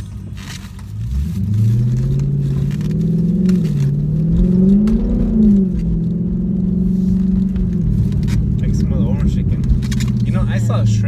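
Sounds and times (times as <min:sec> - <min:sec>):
vehicle engine accelerating: 0:00.0 - 0:11.0.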